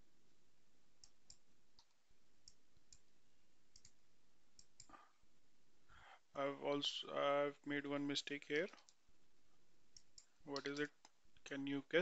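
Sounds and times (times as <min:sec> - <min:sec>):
keyboard and mouse clicks: 0:03.7 - 0:04.0, 0:10.0 - 0:11.2.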